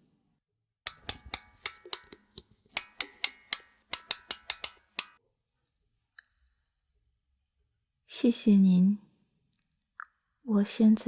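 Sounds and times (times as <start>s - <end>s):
wind-up key ratcheting clicks: 2.8s - 5.2s.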